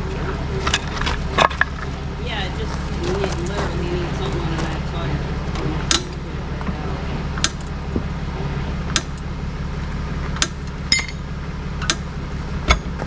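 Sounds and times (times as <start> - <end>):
vehicle engine idling: 0.0 - 13.0
sharp clinks: 10.9 - 11.3.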